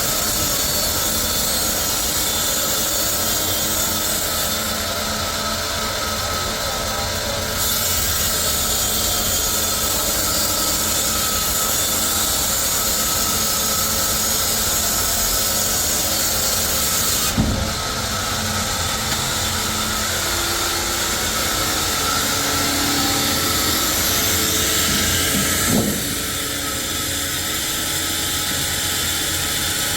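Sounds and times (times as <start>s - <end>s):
saw cutting wood: 0.0s - 29.9s
short knock: 17.4s - 17.8s.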